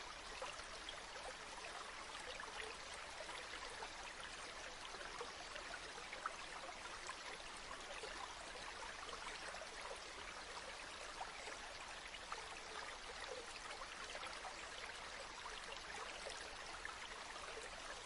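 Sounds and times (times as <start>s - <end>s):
river water flowing: 0.0s - 18.0s.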